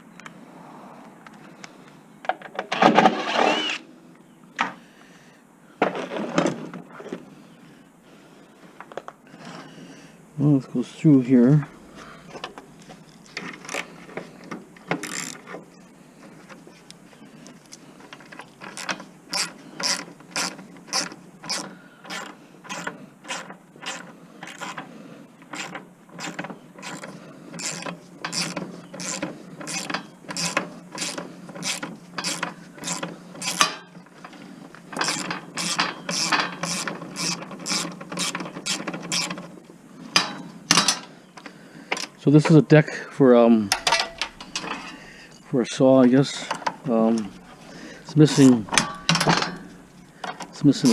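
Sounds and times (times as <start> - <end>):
hand ratchet clicking: 14.9 - 15.6, 18.4 - 24.8, 25.5 - 33.9, 34.9 - 39.4.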